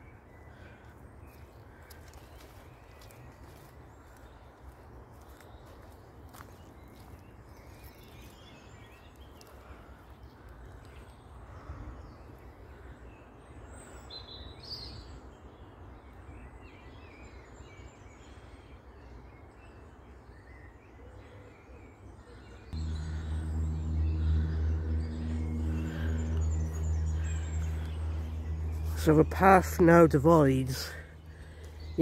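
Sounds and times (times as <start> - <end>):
faint birdsong: 0.0 - 32.0
steady low rumble: 22.8 - 32.0.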